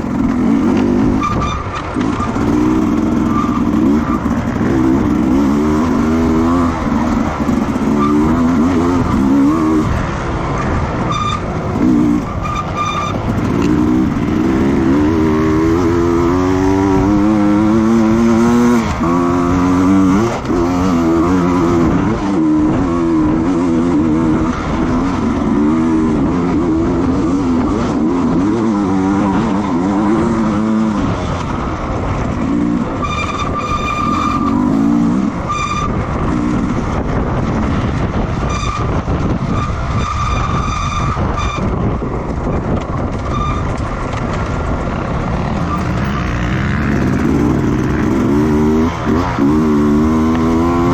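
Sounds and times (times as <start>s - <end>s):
racing motorcycle engines revving: 0.0s - 50.9s.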